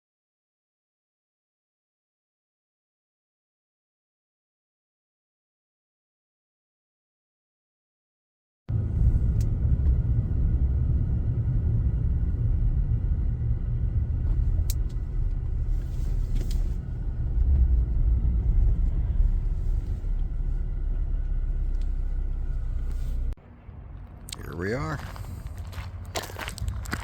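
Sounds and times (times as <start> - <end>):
road noise: 8.7 - 27.0
vehicle engine rumble: 8.7 - 27.0.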